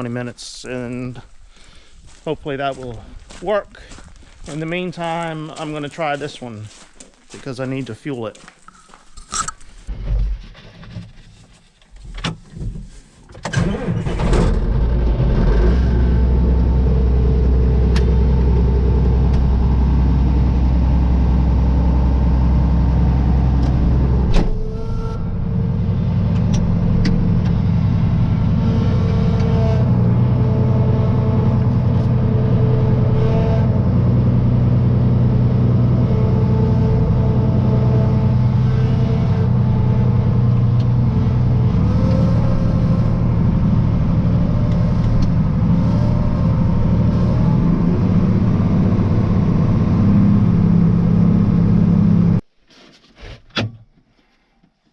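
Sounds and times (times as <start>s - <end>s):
engine cranking and idling: 13.4s - 52.4s.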